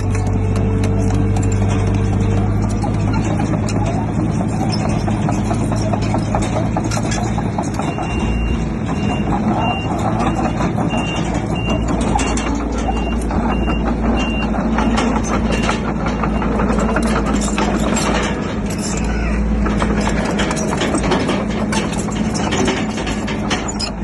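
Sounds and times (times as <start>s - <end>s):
clanking and rattling: 0.0s - 24.0s
diesel engine running: 0.0s - 24.0s
reversing alarm beeping: 7.7s - 17.5s.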